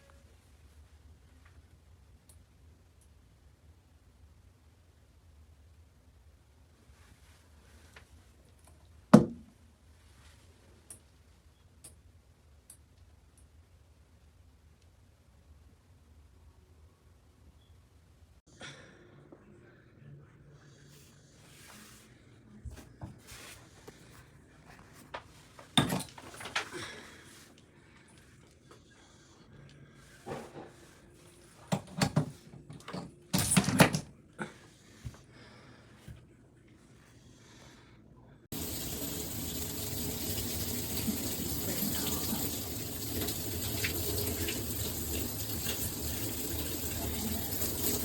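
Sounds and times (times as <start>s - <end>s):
shower head spraying water: 38.6s - 48.0s.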